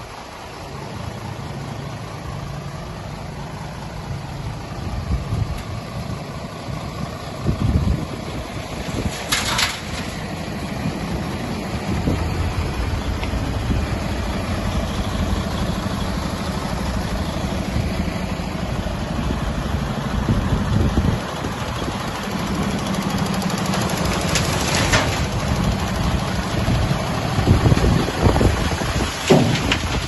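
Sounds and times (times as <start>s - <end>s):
diesel truck engine idling: 0.0s - 30.0s.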